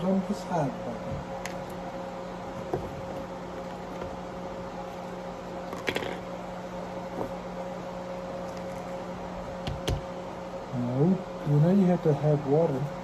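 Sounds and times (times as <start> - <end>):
steady room hum: 0.0 - 13.0.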